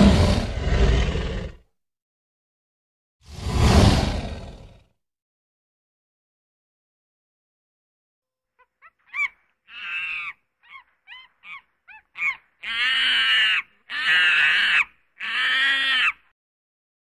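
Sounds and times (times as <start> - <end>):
animal calling: 8.5 - 16.3.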